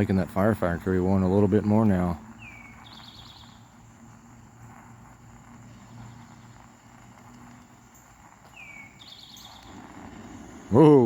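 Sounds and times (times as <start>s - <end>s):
quiet hiss: 0.0s - 11.0s
songbird calling: 0.9s - 4.0s, 7.8s - 11.0s.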